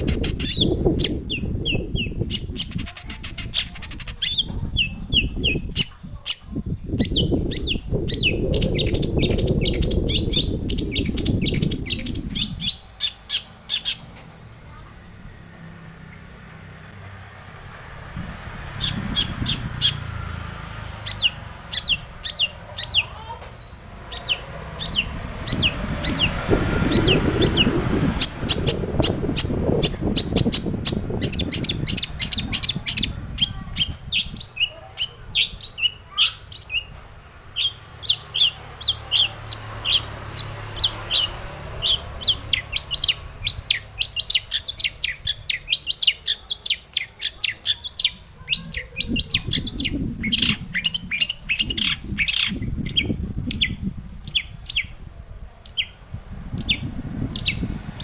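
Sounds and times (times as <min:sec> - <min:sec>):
bird chirping song: 0:00.0 - 0:16.4, 0:17.8 - 0:58.0
low rumble: 0:03.7 - 0:22.8.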